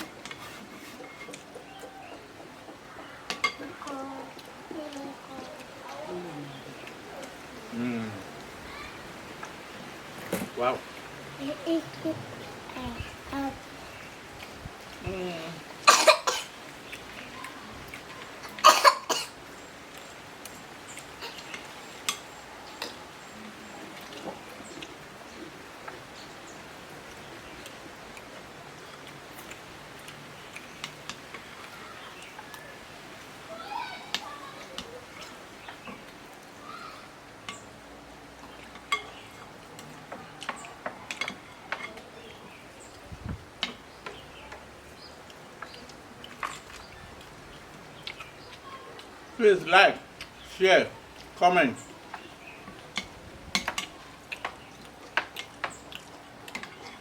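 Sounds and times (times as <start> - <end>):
cutlery clinking against plate: 0.0 - 2.0, 3.3 - 3.7, 52.9 - 55.8.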